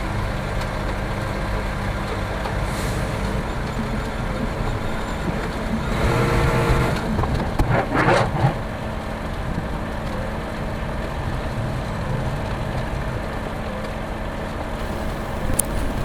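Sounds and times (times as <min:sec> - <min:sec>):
diesel truck engine idling: 0:14.8 - 0:16.0
short hiss: 0:14.8 - 0:16.0.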